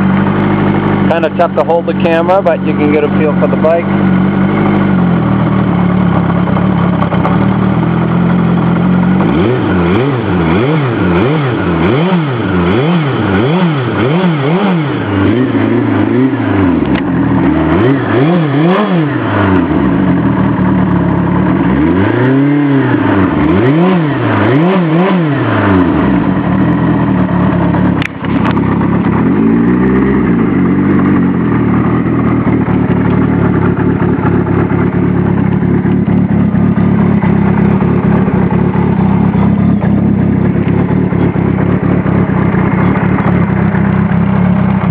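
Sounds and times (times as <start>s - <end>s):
motorcycle engine revving: 0.0s - 44.9s
sharp click: 28.0s - 28.6s.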